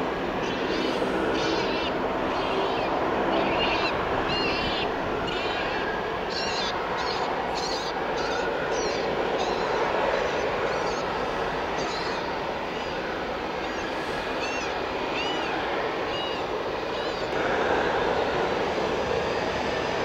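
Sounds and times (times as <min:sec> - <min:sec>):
steady rushing noise: 0:00.0 - 0:20.0
small birds chirping: 0:00.4 - 0:13.0.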